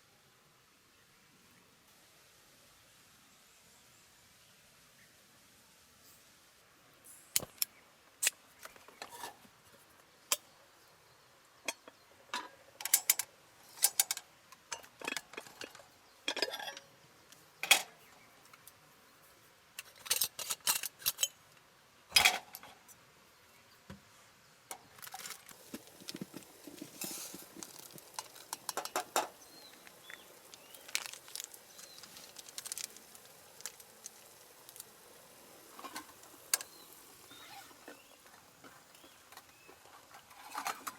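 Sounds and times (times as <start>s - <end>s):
soft rustling: 25.0s - 34.9s
ticking: 25.0s - 35.1s.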